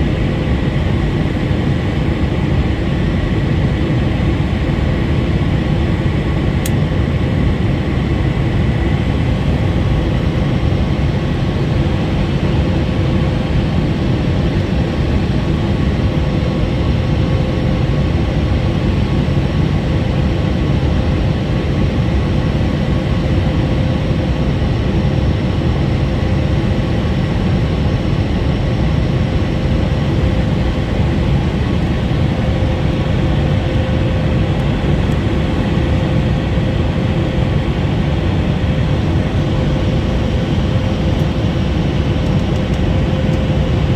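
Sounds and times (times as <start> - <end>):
aircraft cabin engine roar: 0.0 - 43.9.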